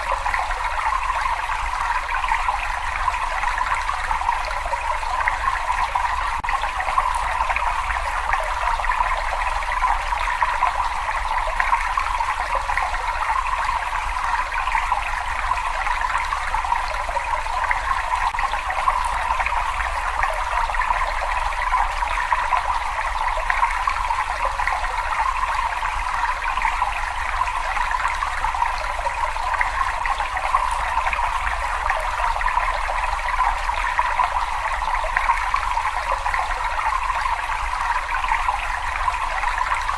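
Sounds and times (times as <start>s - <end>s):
running water trickling and splashing: 0.0s - 39.9s.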